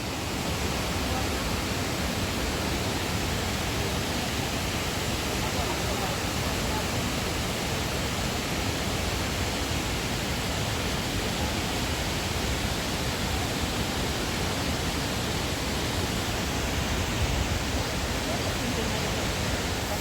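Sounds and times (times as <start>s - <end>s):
water rushing over rocks: 0.0s - 20.0s.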